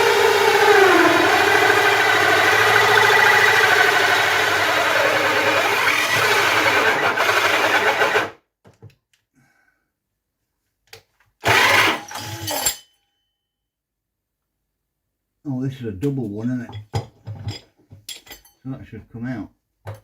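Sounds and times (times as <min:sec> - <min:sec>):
cordless drill running: 0:00.0 - 0:08.4, 0:11.4 - 0:12.1.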